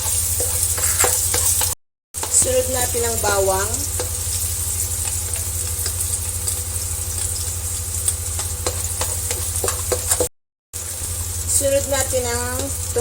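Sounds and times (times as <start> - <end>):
garlic and onion sizzling in oil: 0.0 - 13.0
utensil clicking against pan: 8.0 - 10.3.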